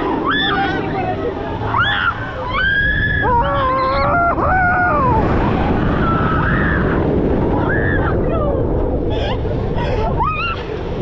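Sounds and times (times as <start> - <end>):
rushing noise of ride: 0.0 - 11.0.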